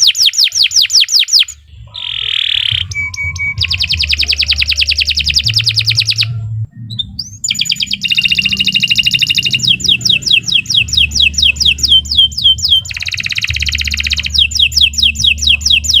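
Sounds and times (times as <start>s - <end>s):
canary singing trills: 0.0s - 16.0s
low steady hum: 1.5s - 16.0s.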